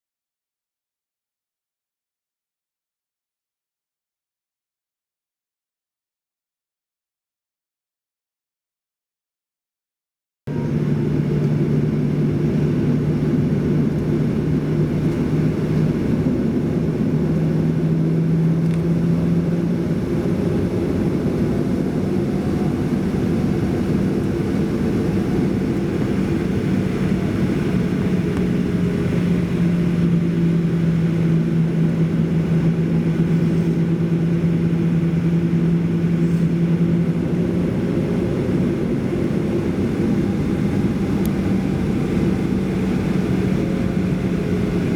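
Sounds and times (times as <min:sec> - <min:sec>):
jet engine cabin drone: 0:10.5 - 0:44.9
low hum: 0:10.5 - 0:44.9.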